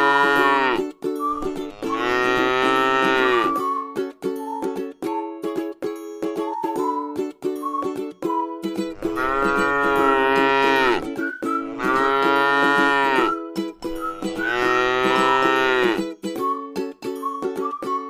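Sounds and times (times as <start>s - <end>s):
cow mooing: 0.0s - 0.8s, 1.7s - 3.6s, 9.0s - 11.0s, 11.7s - 13.4s, 14.3s - 16.0s.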